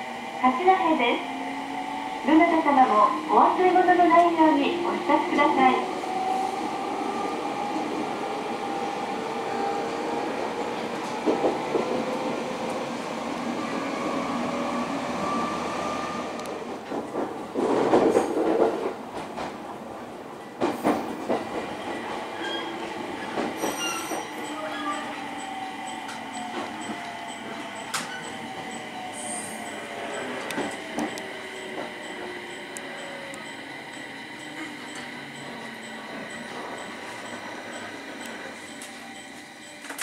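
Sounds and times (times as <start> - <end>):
train running noise: 0.0 - 19.8, 20.5 - 40.0
wheels squealing: 22.3 - 33.8.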